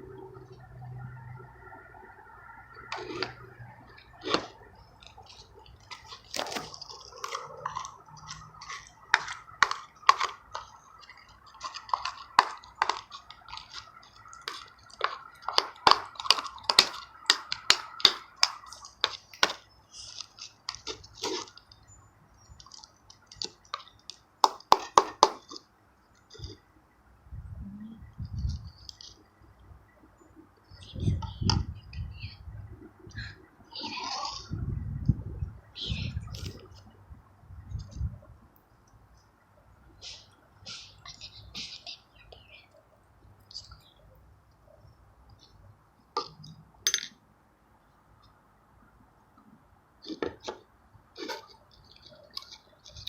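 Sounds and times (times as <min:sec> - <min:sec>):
slime squelching and clicking: 0:02.4 - 0:26.6.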